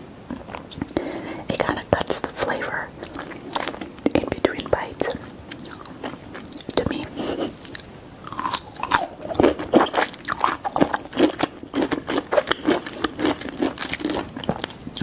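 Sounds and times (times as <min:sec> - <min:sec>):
biting and chewing pizza: 0:05.5 - 0:15.0.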